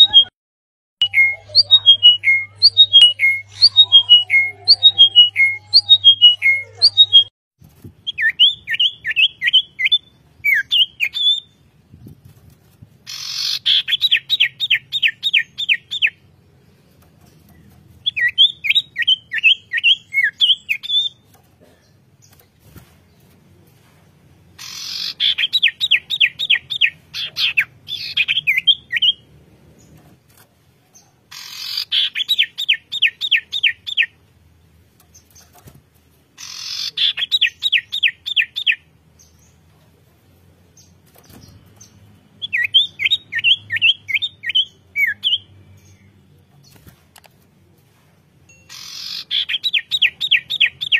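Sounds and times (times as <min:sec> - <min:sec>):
songbird whistling: 0:42.4 - 0:45.5.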